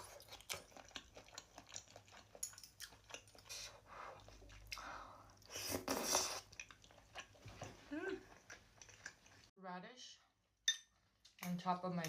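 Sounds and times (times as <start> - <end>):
chewing food: 0.0 - 9.5.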